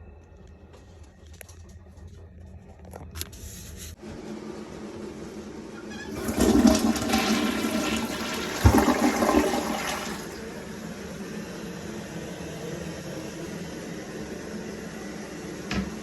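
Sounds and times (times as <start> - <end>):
toilet flushing: 5.7 - 12.4
toilet cistern refilling hiss: 6.1 - 10.8.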